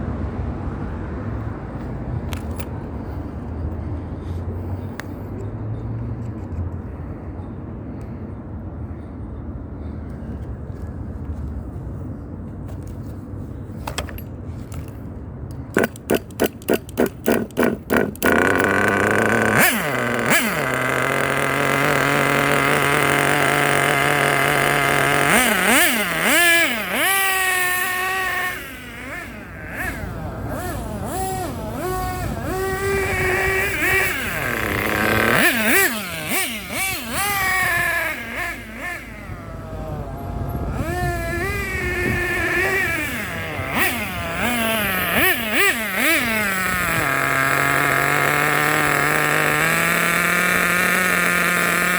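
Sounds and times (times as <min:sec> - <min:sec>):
rc car engine revving: 0:15.7 - 0:51.9.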